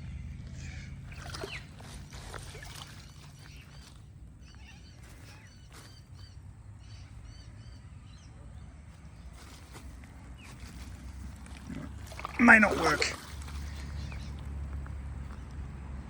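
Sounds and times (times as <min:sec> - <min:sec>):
bird chirping: 0:00.0 - 0:09.6, 0:12.4 - 0:14.6
net splashing in shallow water: 0:00.6 - 0:04.5, 0:09.3 - 0:14.7.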